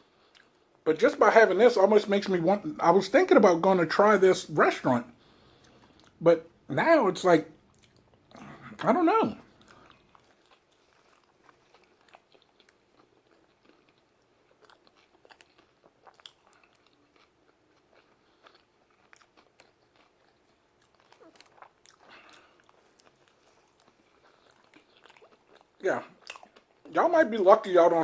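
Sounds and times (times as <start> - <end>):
wet chewing: 5.2 - 6.2, 7.6 - 27.0.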